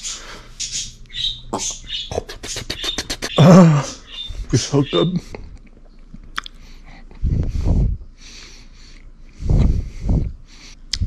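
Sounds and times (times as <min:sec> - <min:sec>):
man chewing food: 0:05.2 - 0:07.2, 0:08.4 - 0:09.7
breath puffs on microphone: 0:09.4 - 0:10.8.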